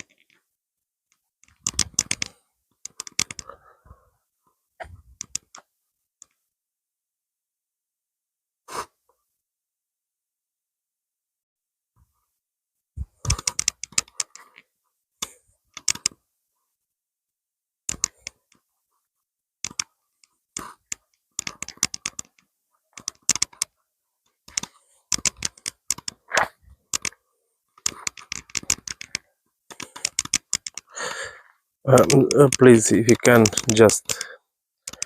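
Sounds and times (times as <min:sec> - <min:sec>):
dry crackling and clicking: 0:01.4 - 0:03.5, 0:05.2 - 0:06.4, 0:13.2 - 0:14.6, 0:15.2 - 0:16.2, 0:17.9 - 0:18.6, 0:19.6 - 0:23.7, 0:24.4 - 0:27.2, 0:27.8 - 0:31.3, 0:31.9 - 0:35.0.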